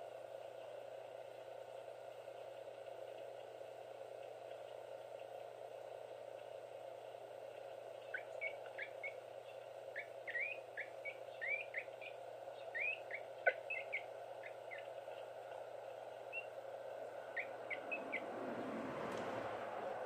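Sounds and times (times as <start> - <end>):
steady background hum: 0.0 - 20.0
small birds chirping: 7.5 - 18.4.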